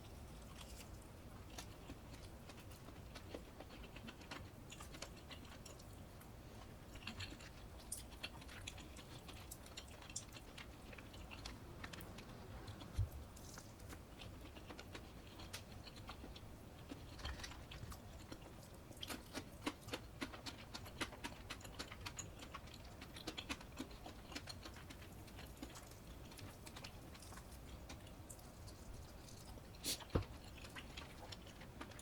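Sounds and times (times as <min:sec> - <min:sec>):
person chewing food: 0:00.0 - 0:32.0.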